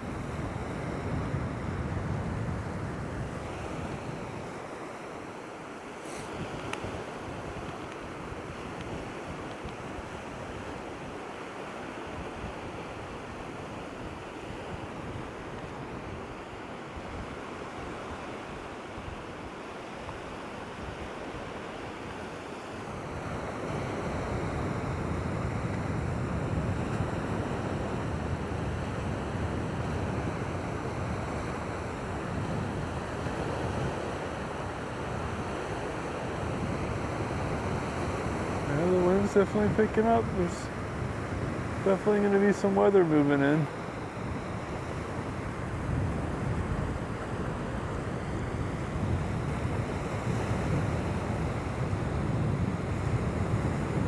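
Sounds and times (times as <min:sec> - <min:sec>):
wind buffeting microphone: 0:00.0 - 0:04.6, 0:23.7 - 0:42.4, 0:44.2 - 0:54.0
waves washing on shore: 0:00.0 - 0:54.0.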